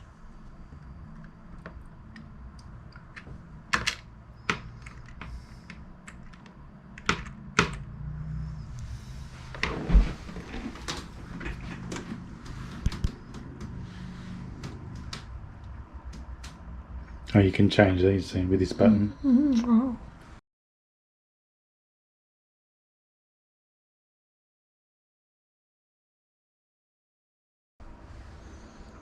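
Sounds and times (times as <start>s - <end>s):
keyboard keys clicking: 1.1s - 7.9s, 11.5s - 13.8s.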